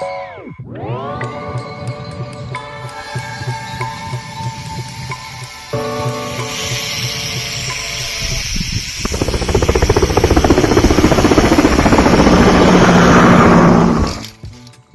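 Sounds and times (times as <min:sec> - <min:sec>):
hiss: 0:02.8 - 0:11.4
helicopter rotor beating: 0:03.5 - 0:14.3.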